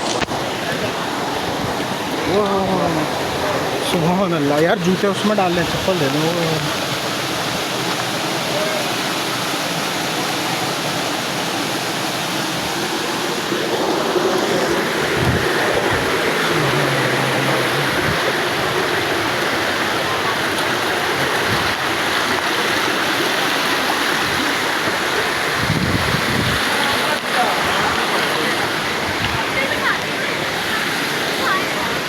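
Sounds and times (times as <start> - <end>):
water rushing down waterfall: 0.0 - 32.0.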